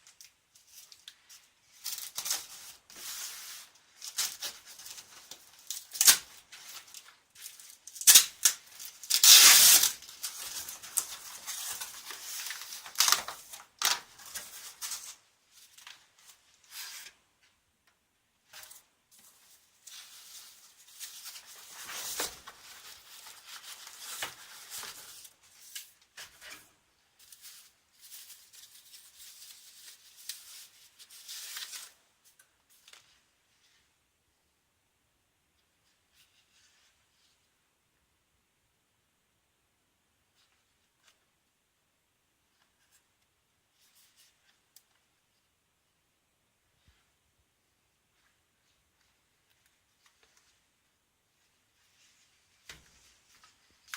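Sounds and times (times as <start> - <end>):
packaging rustling and tearing: 0.6 - 15.2.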